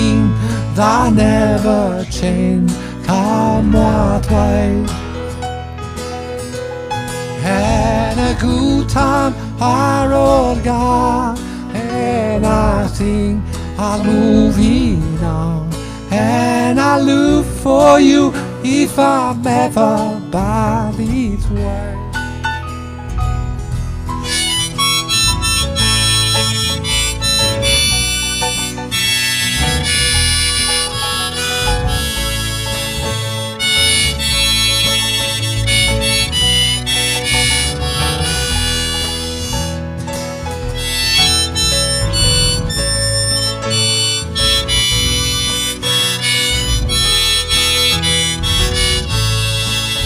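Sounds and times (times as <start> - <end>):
acoustic guitar accompaniment: 0.0 - 50.0
harmonica solo: 12.6 - 15.2, 24.0 - 50.0.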